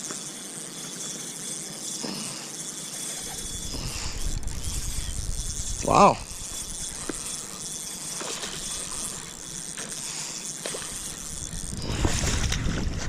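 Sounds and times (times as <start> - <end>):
river water hissing: 2.0 - 12.4
wind rumbling on microphone: 3.4 - 7.2, 11.0 - 13.0.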